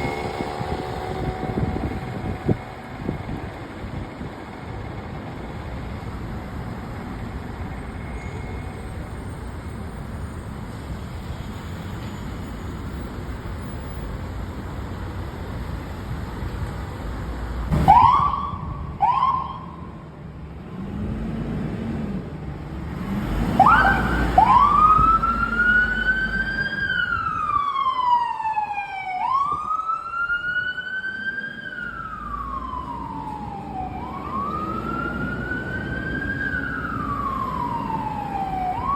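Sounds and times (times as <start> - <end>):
siren whoops: 0.0 - 3.2, 17.8 - 19.9, 23.6 - 38.9
siren wailing: 0.0 - 4.1, 17.8 - 19.9, 23.6 - 38.9
vehicle engine rumble: 0.0 - 38.9
faster falling siren sweep: 17.7 - 19.8, 23.6 - 38.9.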